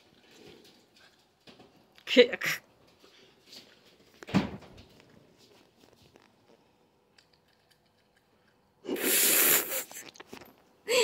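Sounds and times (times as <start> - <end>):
soft chewing: 5.0 - 8.8, 9.9 - 10.8.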